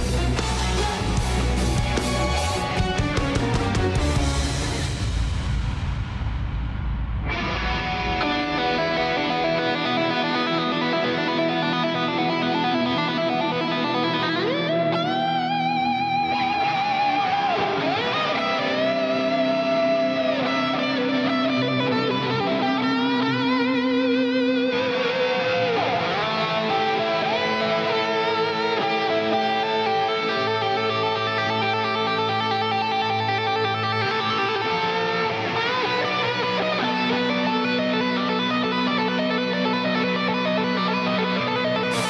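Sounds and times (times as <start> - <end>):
electric guitar lead melody: 0.0 - 5.5, 7.3 - 42.0
sustained band chords: 0.0 - 5.9.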